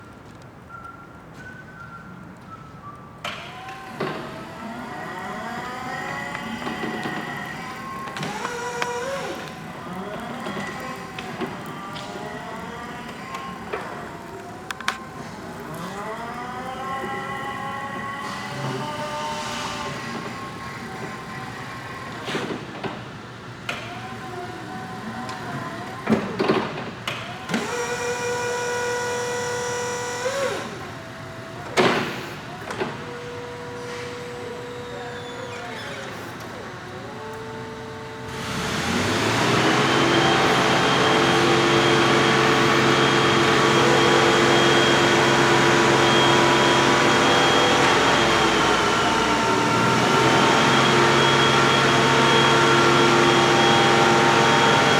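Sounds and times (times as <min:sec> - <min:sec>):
electric motor whine: 0:03.6 - 0:22.0, 0:36.8 - 0:54.9
motor whine with hiss: 0:27.5 - 0:54.9.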